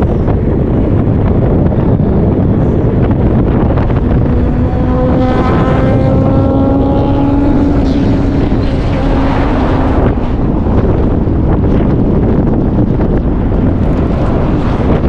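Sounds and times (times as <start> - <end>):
road and wind noise: 0.0 - 15.0
vehicle engine tone: 2.0 - 13.1.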